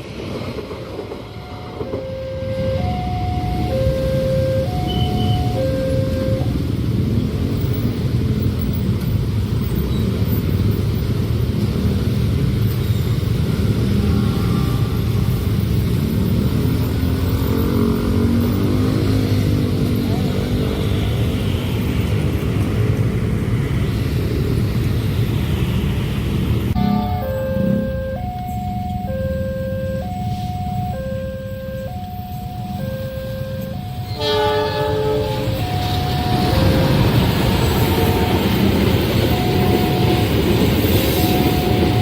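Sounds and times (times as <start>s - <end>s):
train rumbling past: 0.0s - 42.0s
two-tone crossing warning chime: 1.3s - 6.9s, 26.8s - 42.0s.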